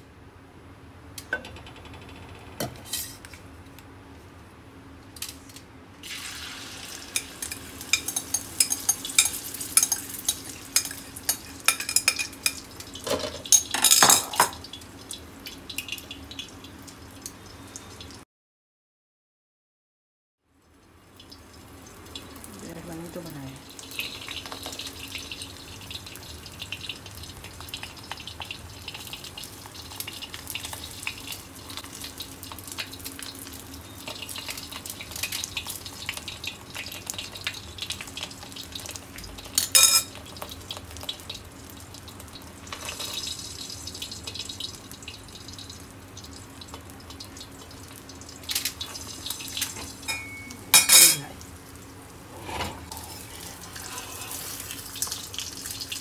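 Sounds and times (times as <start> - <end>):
omelet sizzling in a pan: 6.0 - 18.2, 20.6 - 56.0
utensil clinking against pan: 50.1 - 51.2.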